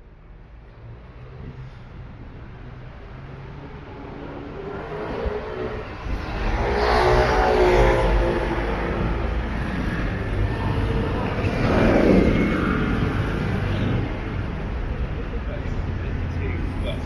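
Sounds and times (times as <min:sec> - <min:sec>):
traffic noise: 0:00.0 - 0:17.0
vehicle engine passing: 0:04.4 - 0:14.7.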